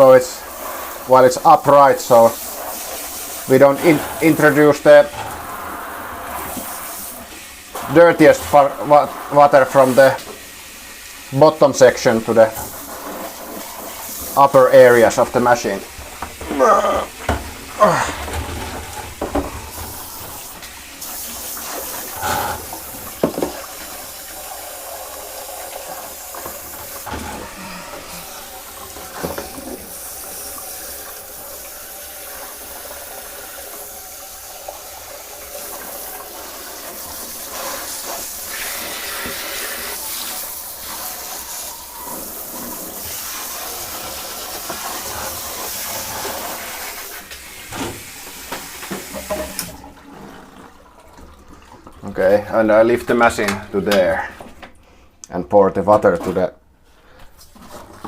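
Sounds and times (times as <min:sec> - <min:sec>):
shower water splattering: 0:00.0 - 0:54.6.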